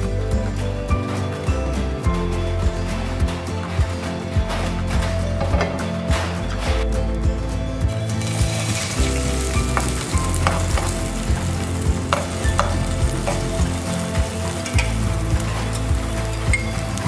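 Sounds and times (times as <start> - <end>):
potato sizzling in hot oil: 8.2 - 15.1.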